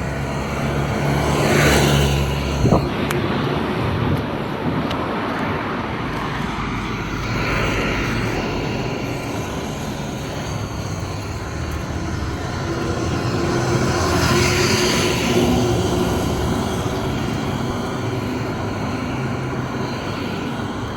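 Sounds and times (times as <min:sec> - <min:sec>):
motor engine rumble: 0:00.0 - 0:20.9.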